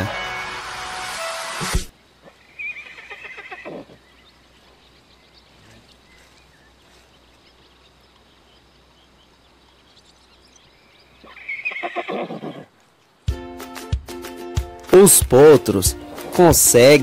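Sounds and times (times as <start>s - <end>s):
horse whinnying: 2.5s - 4.0s, 11.3s - 12.8s.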